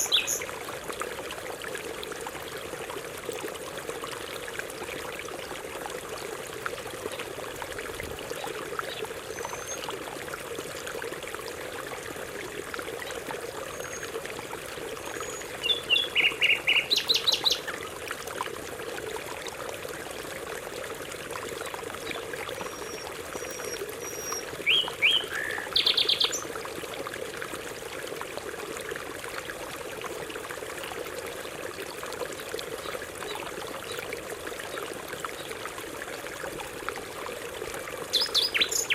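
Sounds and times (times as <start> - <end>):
running stream water: 0.0 - 38.9.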